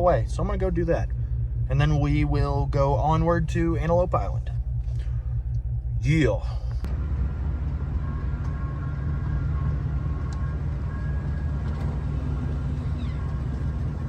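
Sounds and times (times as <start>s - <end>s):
truck engine rumble: 0.0s - 14.0s
road noise: 6.2s - 14.0s.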